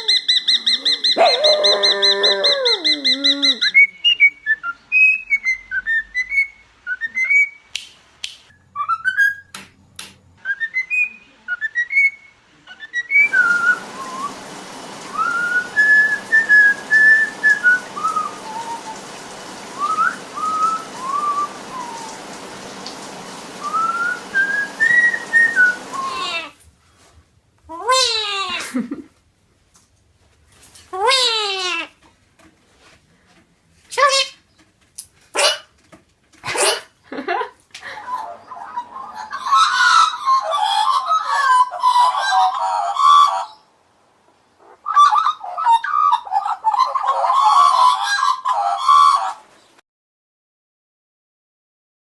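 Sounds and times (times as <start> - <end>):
pet bird whistling: 10.4 - 14.4, 15.1 - 19.0, 19.8 - 22.2, 23.6 - 26.4
steady hiss: 13.2 - 27.0.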